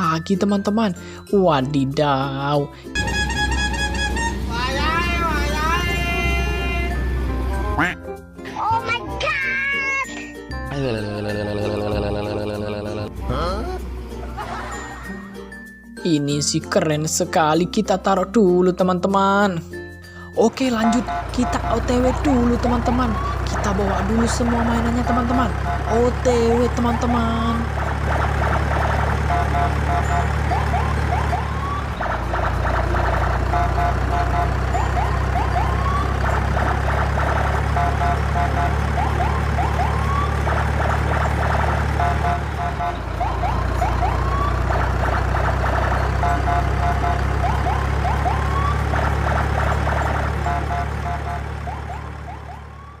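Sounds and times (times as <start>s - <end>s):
low engine-like hum: 2.9s - 7.8s, 20.5s - 53.0s
quick runs of beeps: 20.7s - 53.0s
siren-like sound effect: 20.8s - 53.0s.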